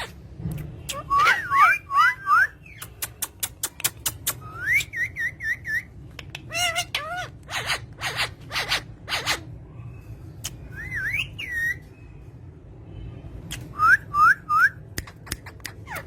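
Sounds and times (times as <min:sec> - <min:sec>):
parrots whistling and calling: 0:00.0 - 0:09.6, 0:10.4 - 0:12.0, 0:13.6 - 0:16.0
sharp clicking chirps: 0:02.7 - 0:05.0.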